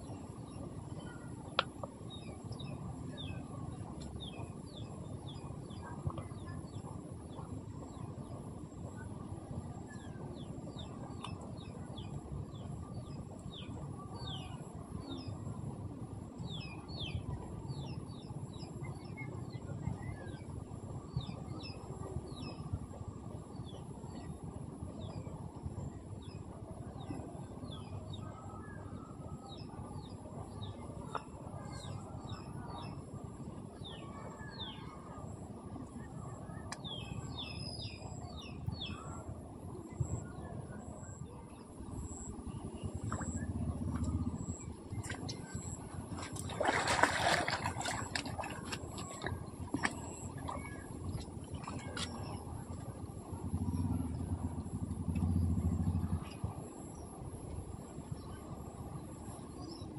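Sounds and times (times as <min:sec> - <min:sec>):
low background rush: 0:00.0 - 0:59.9.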